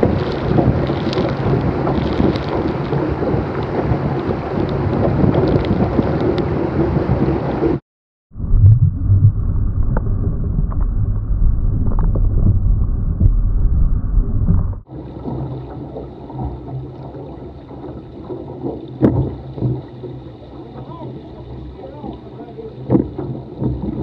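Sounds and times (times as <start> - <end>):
water splashing against hull: 0.0 - 7.8, 8.4 - 24.0
wind buffeting microphone: 0.0 - 7.8.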